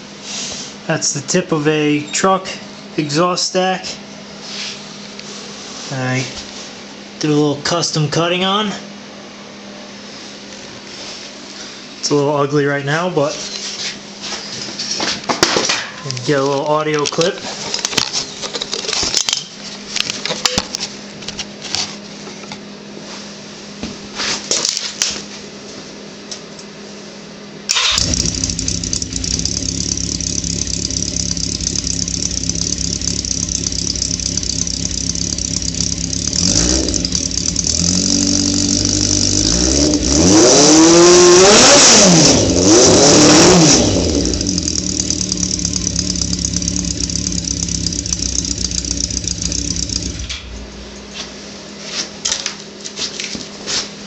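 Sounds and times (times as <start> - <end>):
motorcycle engine idling and revving: 27.8 - 51.0.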